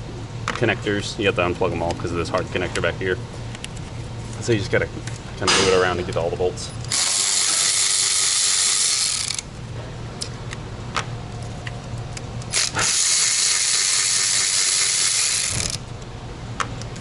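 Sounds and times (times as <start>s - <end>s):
cordless drill spinning out bolts: 6.9s - 9.5s, 12.5s - 15.8s.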